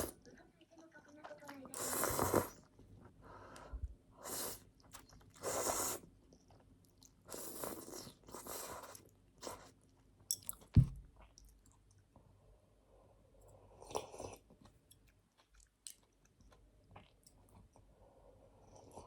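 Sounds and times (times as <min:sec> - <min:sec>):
chewing crunchy food: 0:04.6 - 0:12.2, 0:13.8 - 0:17.9
sharp low thump: 0:10.8 - 0:11.1.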